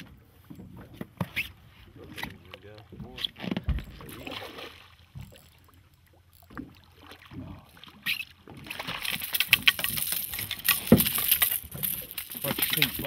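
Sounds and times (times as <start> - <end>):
fish thrashing: 3.9 - 13.0.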